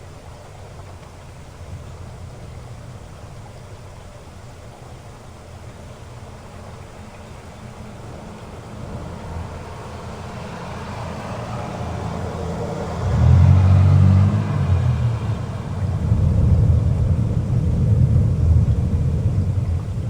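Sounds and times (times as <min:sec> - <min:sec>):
heavy rain: 0:00.0 - 0:20.0
rolling thunder: 0:07.4 - 0:20.0.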